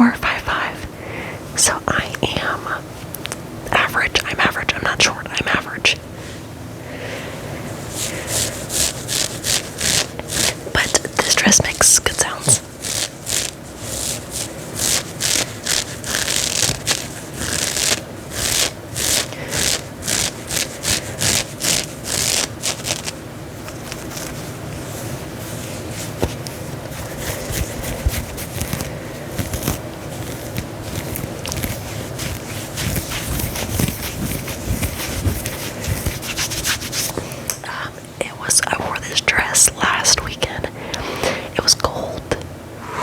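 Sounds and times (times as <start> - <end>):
cloth rubbing: 7.7 - 37.5
scratching on fabric: 7.8 - 37.5.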